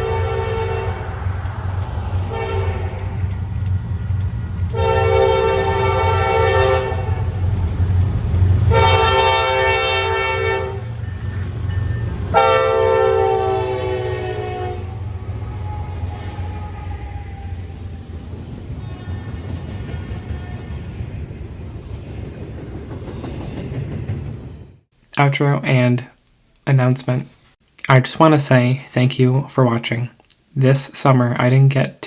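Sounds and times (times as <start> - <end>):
locomotive air horn blasts: 0.0 - 1.3, 2.2 - 3.2, 4.7 - 7.2, 8.7 - 11.3, 12.3 - 16.7
locomotive engine rumble: 0.0 - 24.7.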